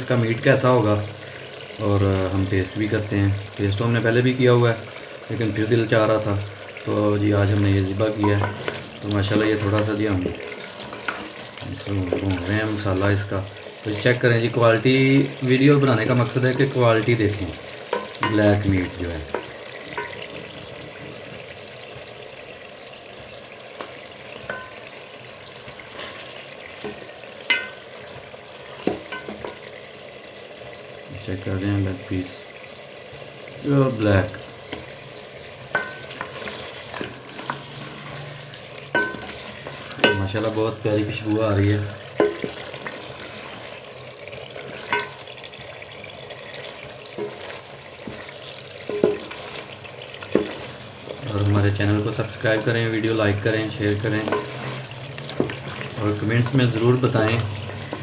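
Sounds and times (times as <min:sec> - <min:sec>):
curry sizzling in a pot: 0:00.0 - 0:58.0
wooden spoon stirring: 0:04.2 - 0:22.0, 0:23.3 - 0:29.9, 0:33.1 - 0:58.0
spoon knocking against pot: 0:23.8 - 0:24.8, 0:26.8 - 0:27.8, 0:35.7 - 0:37.1, 0:38.9 - 0:39.4, 0:40.0 - 0:40.3, 0:42.2 - 0:42.6, 0:44.8 - 0:45.2, 0:48.0 - 0:49.4.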